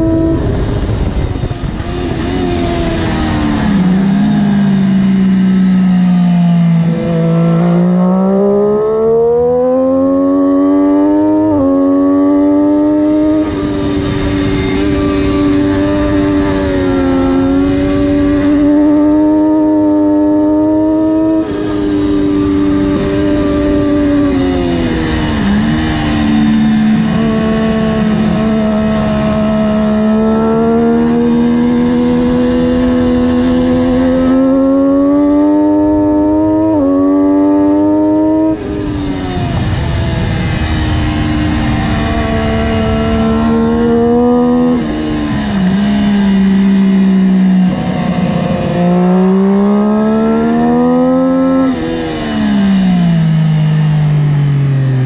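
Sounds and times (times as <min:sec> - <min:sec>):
wind rushing: 0:00.0 - 0:05.9
motorcycle engine revving: 0:00.0 - 0:55.0.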